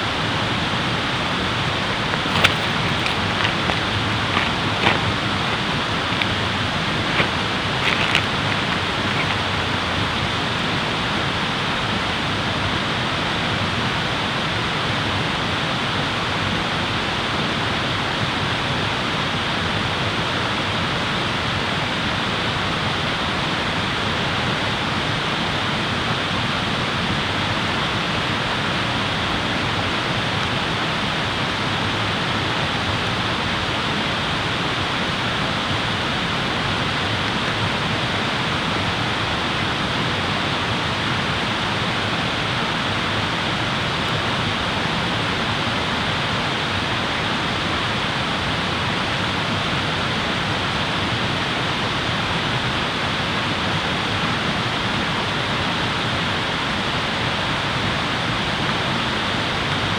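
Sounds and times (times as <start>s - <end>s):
rushing water: 0.3s - 11.0s
sharp crackles: 1.5s - 10.0s.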